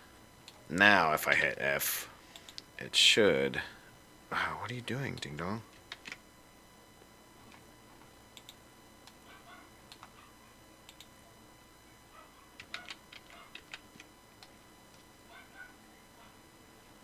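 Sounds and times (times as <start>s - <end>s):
keyboard keys clicking: 5.9s - 6.2s, 12.6s - 15.0s.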